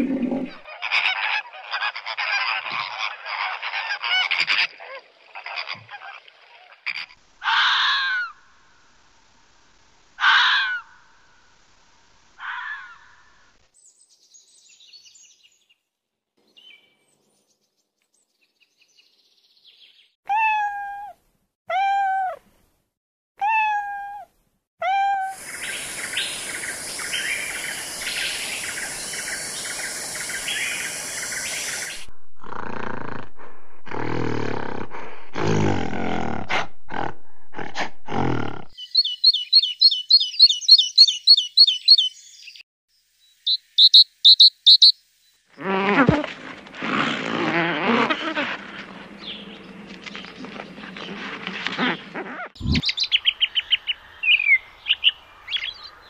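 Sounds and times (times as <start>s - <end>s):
fast high bird chirps: 25.4s - 32.1s, 38.8s - 42.6s, 43.5s - 45.0s, 52.6s - 55.9s
hissing noise: 25.4s - 35.9s.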